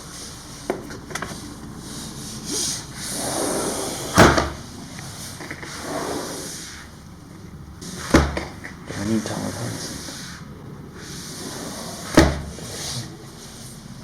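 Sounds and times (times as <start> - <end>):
sliding window rumbling on track: 0.0 - 14.0
window shutting knock: 12.1 - 12.6.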